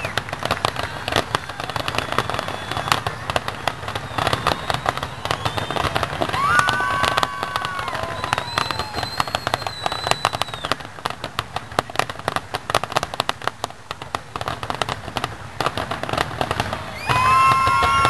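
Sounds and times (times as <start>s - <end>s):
fireworks crackling: 0.0s - 18.0s
high whistling tone: 1.6s - 10.8s.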